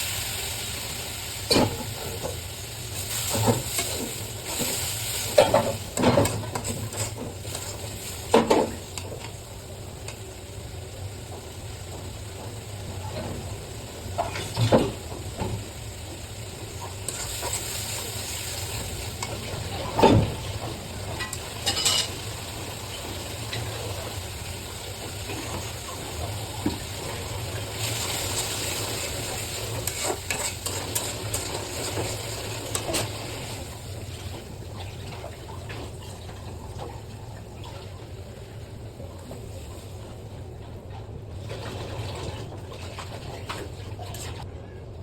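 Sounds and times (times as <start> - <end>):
food sizzling in a pan: 0.0 - 35.1.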